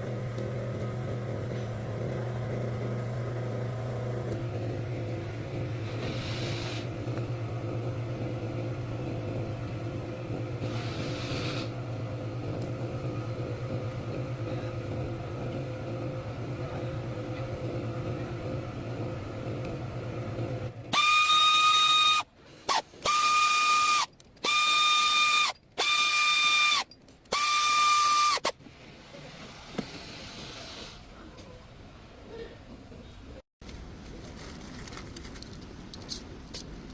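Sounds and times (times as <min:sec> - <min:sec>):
low running hum: 0:00.0 - 0:36.9
high-pitched hooter blasts: 0:20.9 - 0:28.6.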